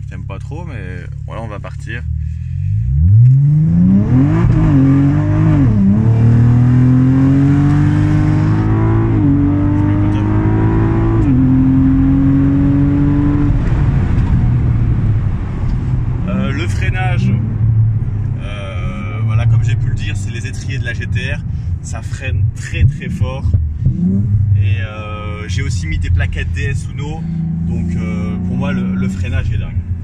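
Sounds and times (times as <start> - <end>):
car engine accelerating hard: 2.7 - 20.2, 22.7 - 30.0.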